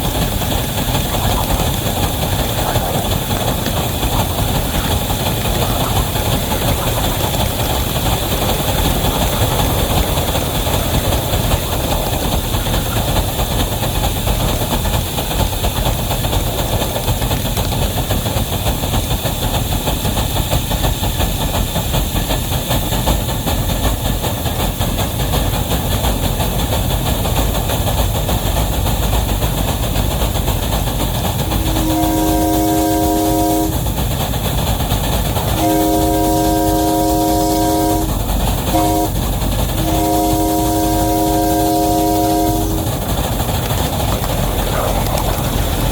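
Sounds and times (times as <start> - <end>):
train rumble and wheel clatter: 0.0 - 45.9
locomotive multi-note chime horn: 31.5 - 33.8, 35.6 - 39.2, 39.8 - 43.0.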